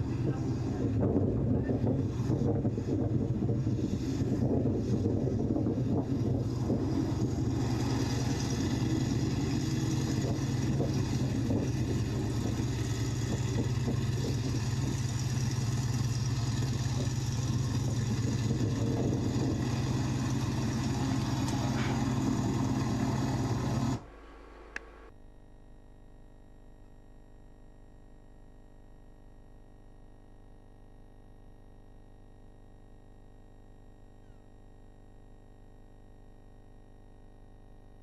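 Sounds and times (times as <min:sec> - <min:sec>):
biplane engine running: 0:00.0 - 0:25.1.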